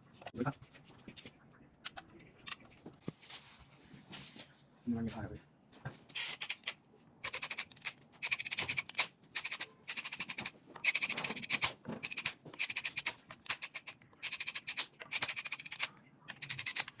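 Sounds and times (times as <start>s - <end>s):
ratchet wrench clicking: 7.3s - 17.0s.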